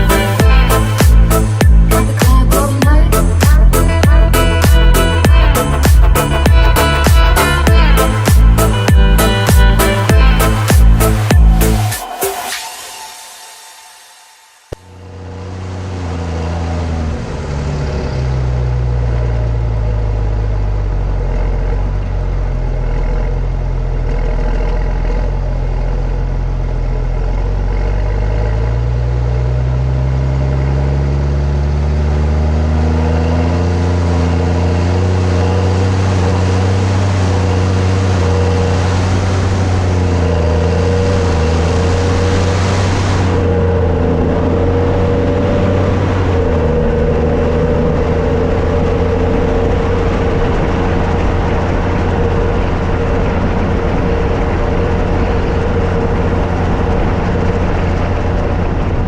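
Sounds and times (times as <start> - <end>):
tractor diesel engine under load: 0.0 - 12.5, 14.7 - 59.0.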